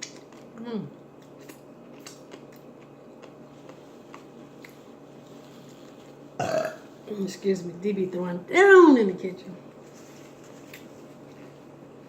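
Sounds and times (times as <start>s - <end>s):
person burping: 6.4s - 6.8s.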